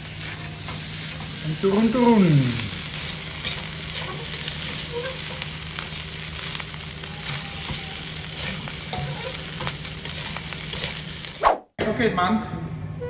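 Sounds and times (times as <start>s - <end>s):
rice sizzling in a hot pan: 0.0s - 11.4s
utensil scraping a pan: 2.9s - 11.4s.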